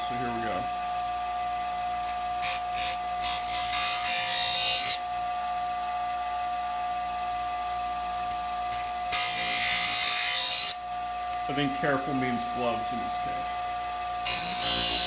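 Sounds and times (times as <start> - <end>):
metal blade grinding: 2.0 - 5.1, 8.7 - 10.8, 14.2 - 15.0
bench grinder motor whine: 12.4 - 15.0.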